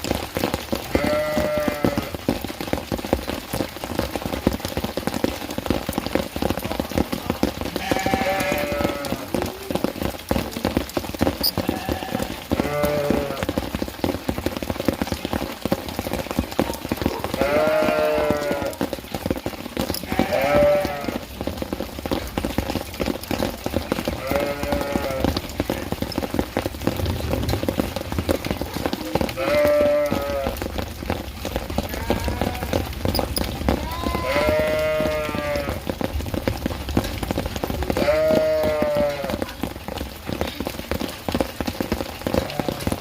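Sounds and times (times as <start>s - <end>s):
rain pattering: 0.0s - 43.0s
goats bleating: 0.9s - 2.2s, 7.8s - 9.8s, 11.5s - 13.5s, 17.1s - 18.8s, 20.0s - 21.3s, 24.1s - 25.4s, 29.1s - 30.7s, 31.8s - 32.9s, 33.7s - 35.9s, 37.8s - 39.4s, 42.3s - 43.0s.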